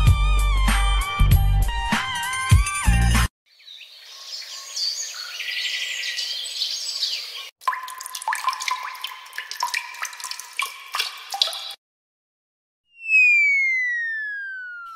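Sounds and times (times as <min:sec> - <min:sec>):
high chirping and twittering: 0:03.5 - 0:07.5
water drops plinking: 0:07.6 - 0:11.8.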